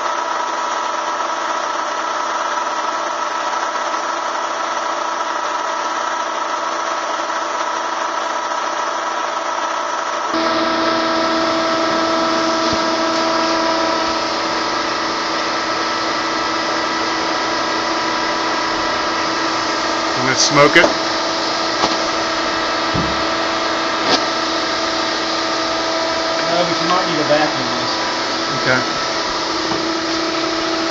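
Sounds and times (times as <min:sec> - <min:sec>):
vacuum motor whining: 0:10.4 - 0:30.9.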